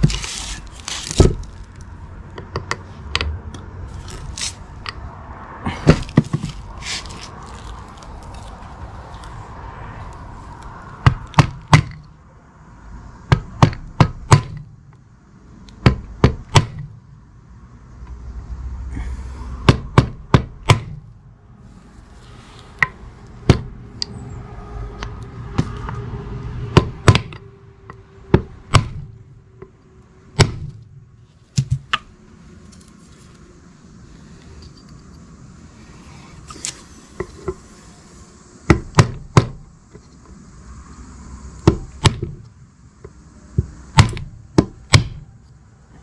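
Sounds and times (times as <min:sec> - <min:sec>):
hammer blows: 0:22.3 - 0:31.9.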